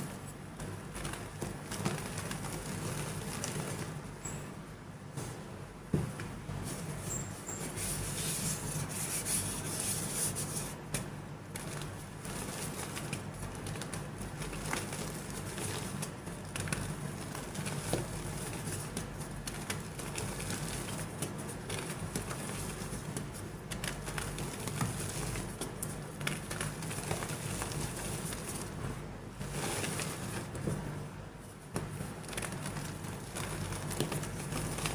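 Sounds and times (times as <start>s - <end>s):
chalk crumbling by hand: 7.4s - 28.8s, 31.5s - 34.9s.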